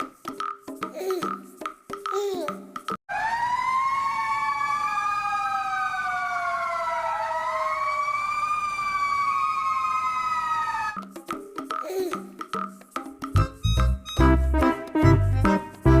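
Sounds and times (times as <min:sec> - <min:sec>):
siren wailing: 0:03.1 - 0:11.0.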